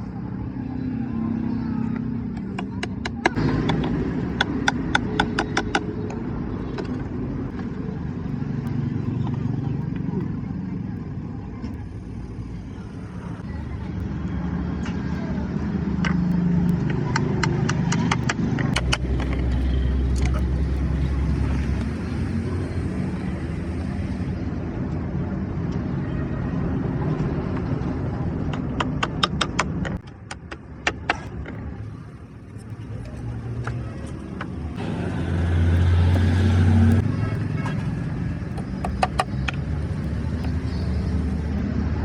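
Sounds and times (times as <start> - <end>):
vehicle engine running: 0.0 - 26.2, 26.9 - 42.0
sharp clicks: 16.0 - 20.5.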